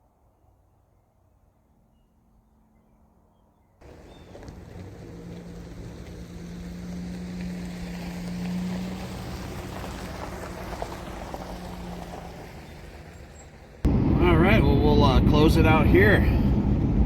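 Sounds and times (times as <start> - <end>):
vehicle engine hum: 3.8 - 17.0.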